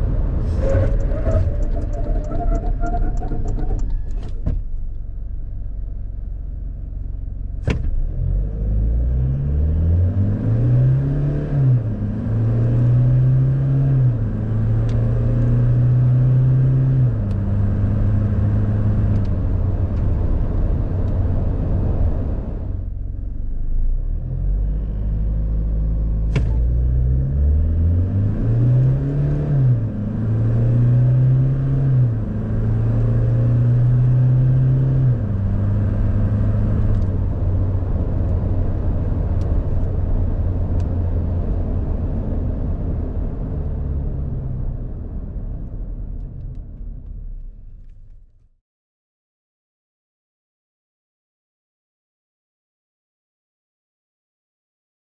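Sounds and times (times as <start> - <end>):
diesel engine accelerating hard: 5.4 - 47.4.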